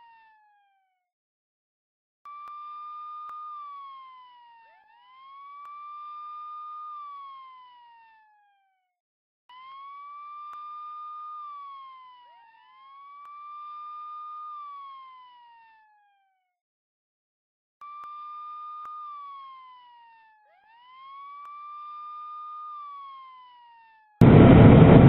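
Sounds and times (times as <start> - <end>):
police siren wailing: 2.9 - 8.6, 9.5 - 16.0, 18.2 - 25.0.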